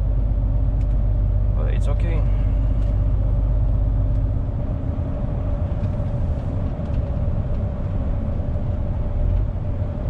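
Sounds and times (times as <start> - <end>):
diesel engine and road drone: 0.0 - 10.0.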